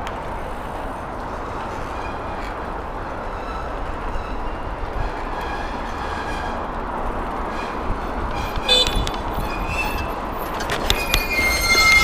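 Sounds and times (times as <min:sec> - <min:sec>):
road and traffic noise: 0:00.0 - 0:12.0
wind on the microphone: 0:06.6 - 0:12.0.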